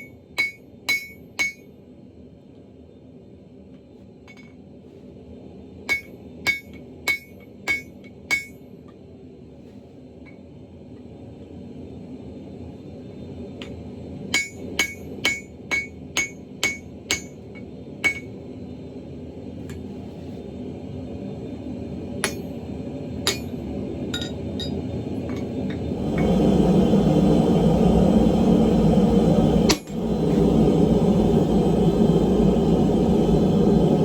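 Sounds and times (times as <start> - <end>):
hammer blows on anvil: 0.0 - 1.7
steady rumble: 0.0 - 34.0.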